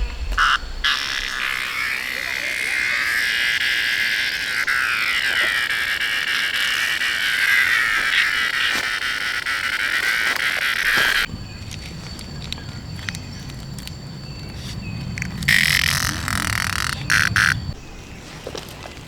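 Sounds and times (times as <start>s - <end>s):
chorus of calling animals: 0.0s - 11.1s.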